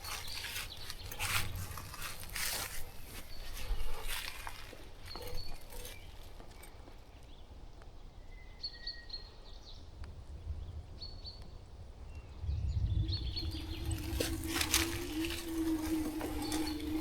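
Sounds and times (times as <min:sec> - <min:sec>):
small birds chirping: 0:00.0 - 0:17.0
low rumble: 0:10.3 - 0:17.0.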